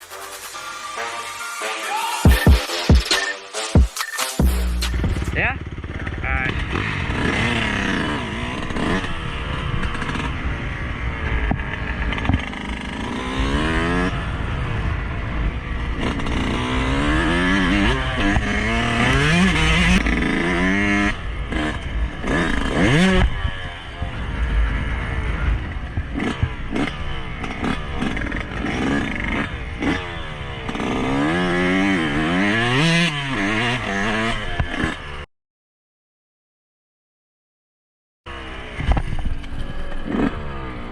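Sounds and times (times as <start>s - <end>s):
dirt bike engine revving: 2.2s - 35.3s, 38.3s - 40.9s.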